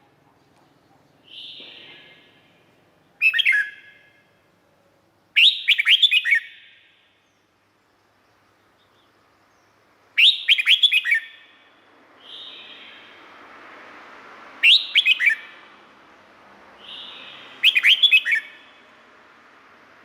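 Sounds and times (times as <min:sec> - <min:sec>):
soft bird call: 0:00.6 - 0:04.2, 0:05.4 - 0:07.3, 0:09.7 - 0:13.2, 0:14.6 - 0:15.6, 0:16.8 - 0:18.8
bird singing whistled phrases: 0:01.2 - 0:02.3, 0:03.2 - 0:04.1, 0:05.4 - 0:06.9, 0:10.2 - 0:11.6, 0:12.2 - 0:13.1, 0:14.6 - 0:15.6, 0:16.8 - 0:18.7.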